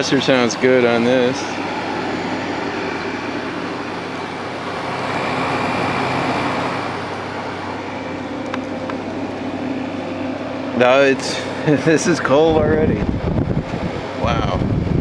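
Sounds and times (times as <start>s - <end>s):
air conditioner compressor hum: 0.0s - 15.0s
fan rushing air: 0.0s - 15.0s.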